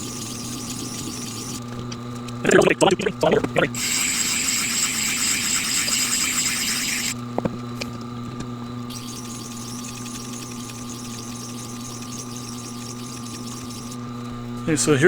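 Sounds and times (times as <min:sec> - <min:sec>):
grinder motor humming: 0:00.0 - 0:15.0
blade hissing on grinding stone: 0:03.7 - 0:07.2, 0:08.9 - 0:14.0.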